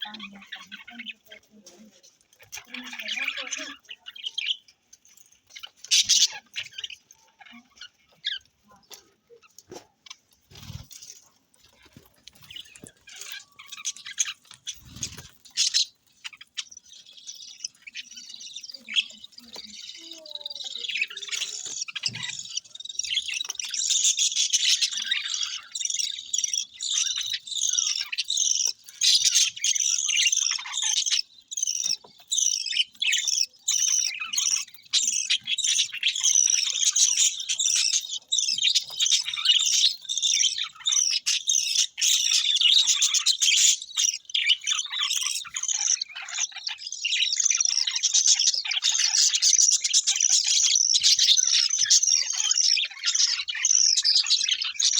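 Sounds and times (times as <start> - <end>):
budgerigars chirping and warbling: 0.0 - 54.9.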